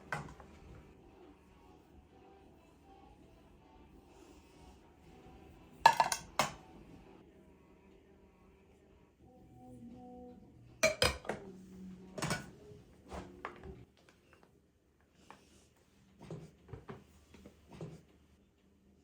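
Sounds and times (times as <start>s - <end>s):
dishes clinking and knocking: 5.8s - 6.6s, 10.8s - 11.4s.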